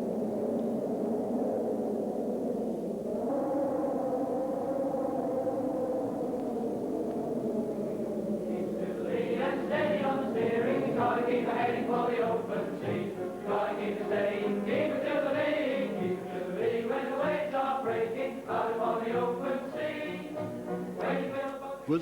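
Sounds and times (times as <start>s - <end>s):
choir singing: 7.9s - 22.0s.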